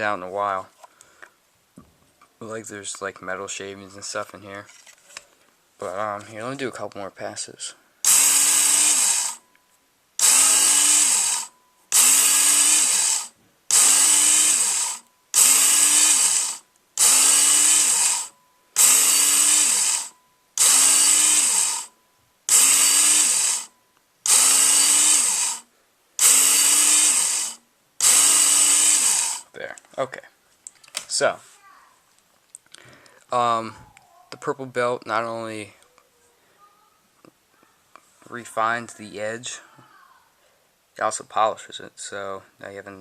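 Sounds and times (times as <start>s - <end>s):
abrasive belt hissing on blade: 8.0s - 9.4s, 10.2s - 21.9s, 22.5s - 23.7s, 24.3s - 25.6s, 26.2s - 29.5s
belt sharpener motor hum: 8.0s - 9.4s, 10.2s - 21.9s, 22.5s - 29.5s.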